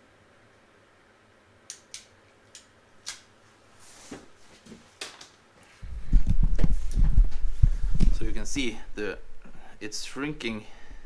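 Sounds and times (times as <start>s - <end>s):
wire connectors clicking and rustling: 5.0s - 5.4s.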